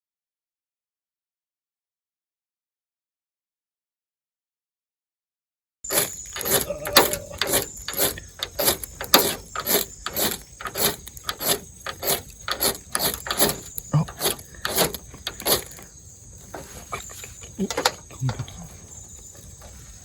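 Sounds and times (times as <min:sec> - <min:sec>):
blade scraping in quick strokes: 0:05.9 - 0:15.9.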